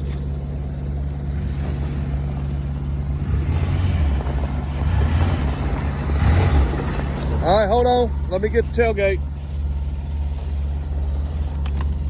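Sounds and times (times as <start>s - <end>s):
utility vehicle engine running: 0.0s - 12.0s.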